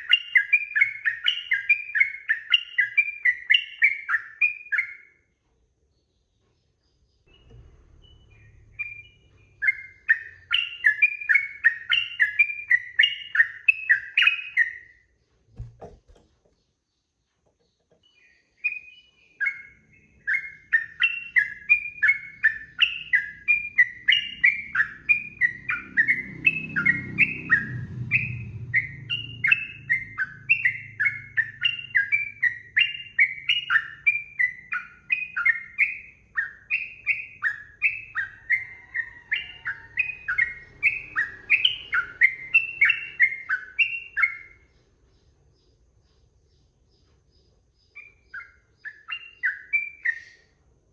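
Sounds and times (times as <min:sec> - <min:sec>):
bulbul singing: 0:00.0 - 0:05.3, 0:06.1 - 0:50.6
brief thump: 0:15.5 - 0:16.6.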